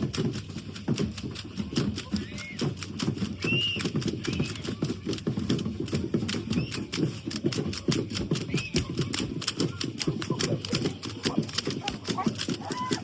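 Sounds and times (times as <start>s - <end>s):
rapid clicks and rattles: 0.0s - 13.0s.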